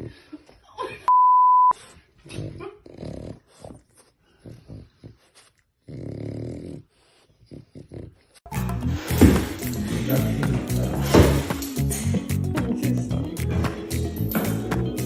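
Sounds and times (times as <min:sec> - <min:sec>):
short electronic beep: 0:01.1 - 0:01.8
dog growling: 0:02.2 - 0:08.4.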